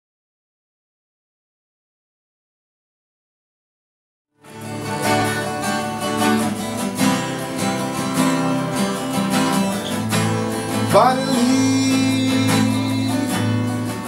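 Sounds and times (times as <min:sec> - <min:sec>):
acoustic guitar strumming: 0:04.4 - 0:14.0.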